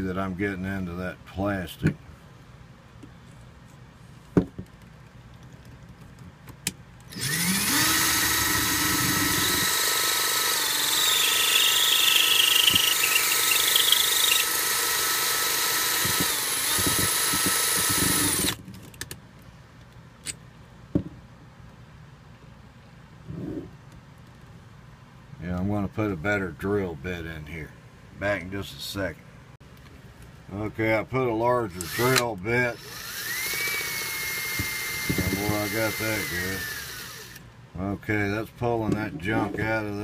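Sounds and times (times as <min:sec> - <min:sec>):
electric drill boring into plastic: 0:07.1 - 0:18.6, 0:31.8 - 0:32.2, 0:32.8 - 0:37.4.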